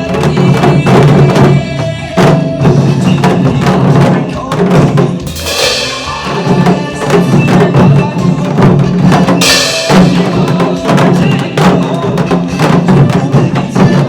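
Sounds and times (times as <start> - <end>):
trot song with steady beat: 0.0 - 14.0
hourglass drums struck with sticks: 5.2 - 13.2
bright cymbal crash: 5.3 - 7.9, 9.4 - 10.9.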